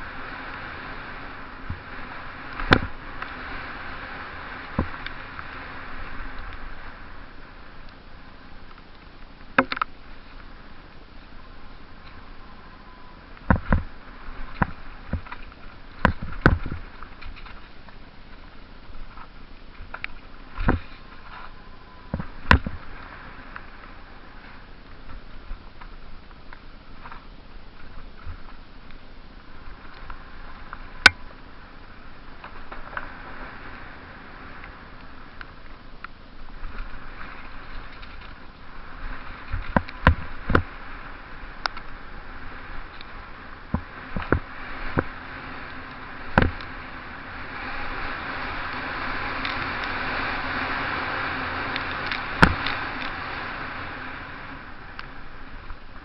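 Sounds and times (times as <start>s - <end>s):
steady rushing noise: 0.0s - 56.0s
wind and tyre noise: 0.0s - 56.0s
bike knocking and rattling: 1.4s - 12.4s, 13.4s - 22.9s, 35.0s - 47.2s, 51.0s - 53.4s.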